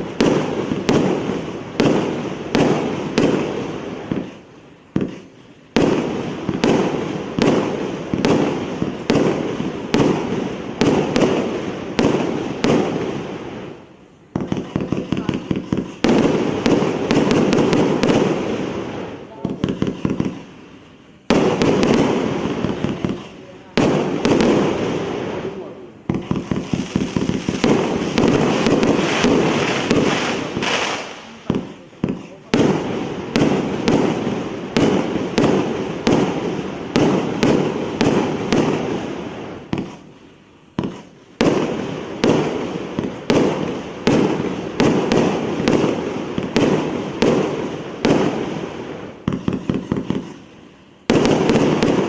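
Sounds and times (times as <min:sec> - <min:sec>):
fireworks bangs with rumbling echo: 0:00.0 - 0:52.0.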